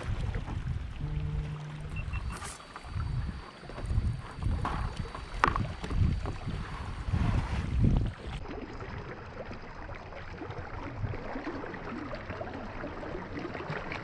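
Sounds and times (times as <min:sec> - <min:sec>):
wind buffeting microphone: 0:00.0 - 0:09.0
water sloshing around paddle board: 0:00.0 - 0:11.8.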